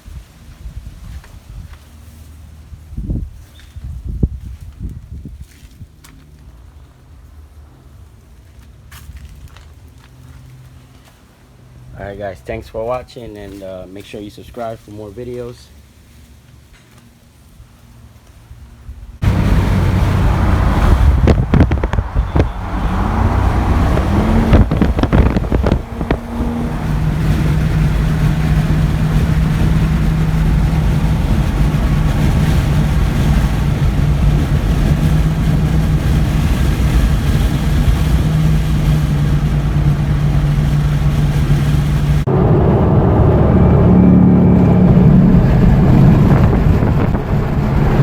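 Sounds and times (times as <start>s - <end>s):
wind noise: 0.0s - 2.0s, 2.6s - 6.0s, 18.8s - 48.0s
car engine: 19.2s - 48.0s.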